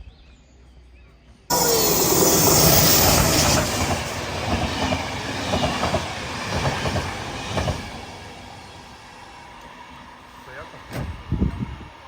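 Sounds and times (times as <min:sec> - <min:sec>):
train wheels clattering on rails: 0:01.5 - 0:09.8.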